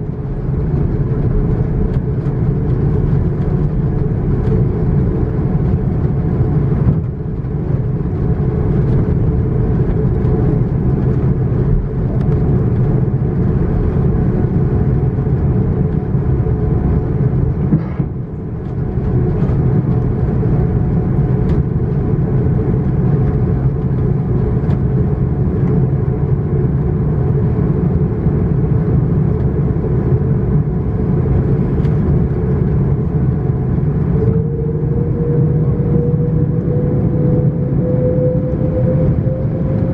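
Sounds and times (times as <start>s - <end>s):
jet engines during takeoff: 0.0s - 39.9s.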